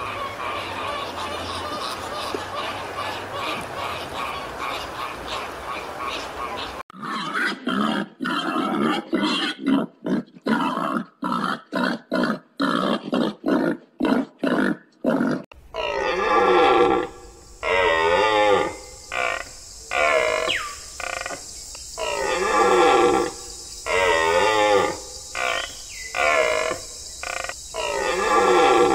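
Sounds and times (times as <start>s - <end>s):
pigs grunting: 7.0s - 20.5s, 22.0s - 28.9s.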